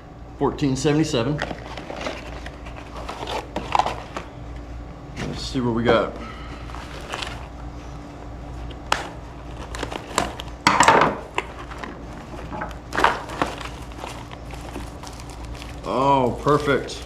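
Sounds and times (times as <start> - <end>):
cardboard rustling and crinkling: 1.4 - 4.4, 5.2 - 10.7, 11.3 - 17.0.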